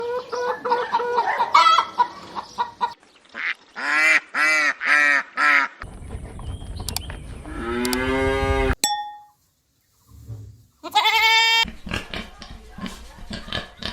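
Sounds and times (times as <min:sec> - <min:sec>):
hens clucking: 0:00.0 - 0:03.0.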